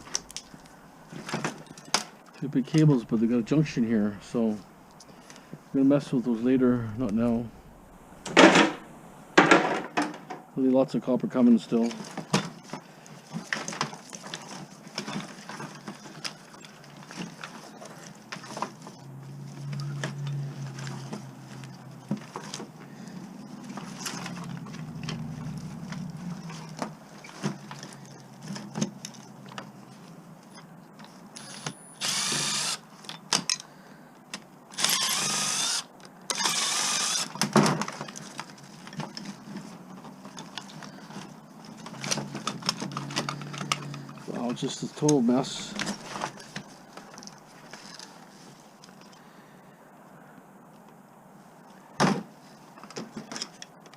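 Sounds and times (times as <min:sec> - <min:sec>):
power drill whirring: 0:31.4 - 0:32.8, 0:34.7 - 0:37.4.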